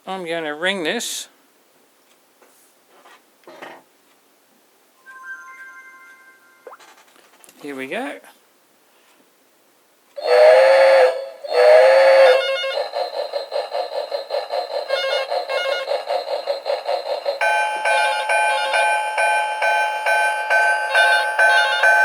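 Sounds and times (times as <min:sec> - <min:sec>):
bright ringing tones: 0:05.0 - 0:06.8, 0:17.4 - 0:22.0
train whistle toots: 0:10.2 - 0:13.0, 0:14.8 - 0:16.1, 0:19.7 - 0:22.0
fast chugging rhythm: 0:12.0 - 0:22.0.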